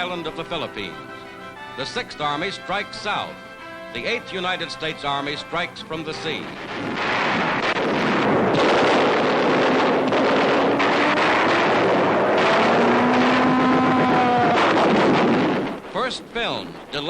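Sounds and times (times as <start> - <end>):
boat engines rushing: 0.0 - 17.0
wind: 0.0 - 17.0.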